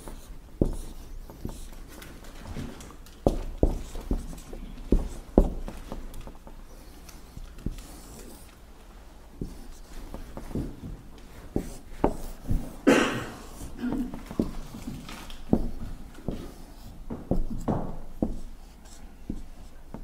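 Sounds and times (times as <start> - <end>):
marker scratching on whiteboard: 0.0 - 8.5, 9.4 - 12.8, 14.3 - 20.0
marker tapping on whiteboard: 0.1 - 1.7, 3.2 - 6.6, 11.6 - 12.8, 15.5 - 20.0.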